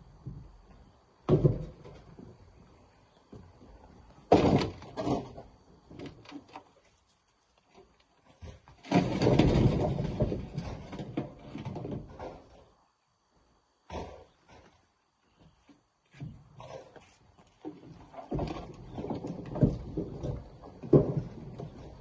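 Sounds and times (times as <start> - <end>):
rocks knocking into truck bed: 1.2 - 2.2, 4.2 - 5.5, 8.8 - 12.5, 18.3 - 22.0
rocks clattering: 8.8 - 12.3.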